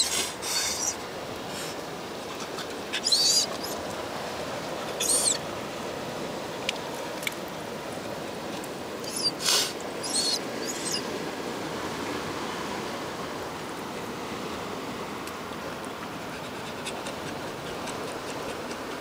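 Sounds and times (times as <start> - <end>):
high squeaky bird calls: 0.0 - 1.0, 3.0 - 3.8, 5.0 - 5.4, 9.0 - 11.1
background wash of noise: 0.0 - 19.0.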